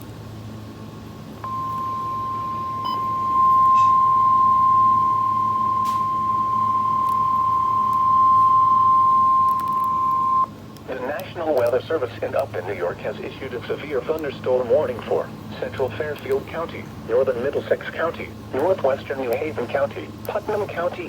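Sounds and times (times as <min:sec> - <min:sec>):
steady high alarm tone: 0:01.4 - 0:10.5.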